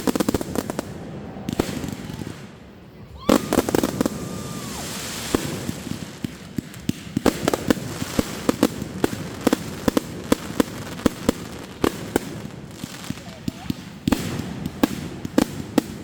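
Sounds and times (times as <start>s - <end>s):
fireworks popping and cracking: 0.0s - 16.0s.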